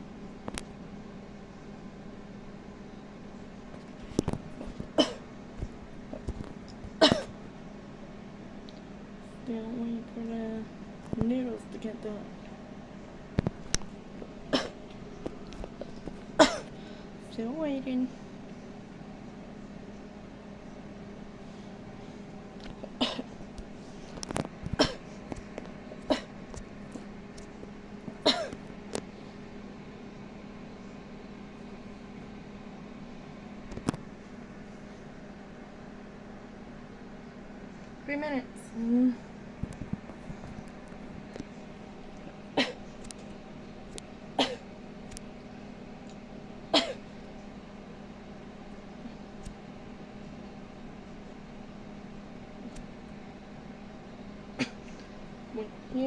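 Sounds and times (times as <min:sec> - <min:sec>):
microwave oven humming: 0:00.0 - 0:56.0
person coughing: 0:05.0 - 0:05.2, 0:07.0 - 0:07.4, 0:14.5 - 0:14.8, 0:16.4 - 0:16.7, 0:22.9 - 0:23.3, 0:24.8 - 0:25.1, 0:26.1 - 0:26.4, 0:28.2 - 0:28.6, 0:42.6 - 0:42.8, 0:44.4 - 0:44.7, 0:46.8 - 0:47.0, 0:54.6 - 0:54.9.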